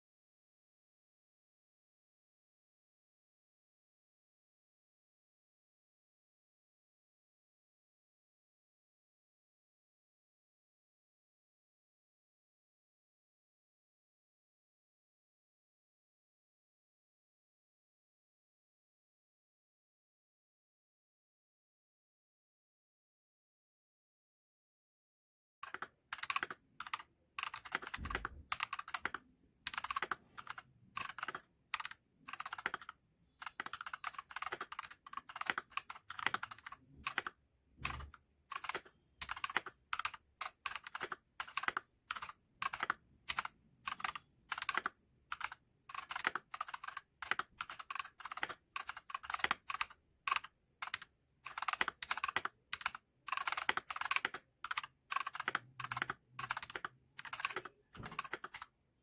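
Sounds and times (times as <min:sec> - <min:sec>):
mechanical keyboard typing: 0:25.6 - 0:58.7.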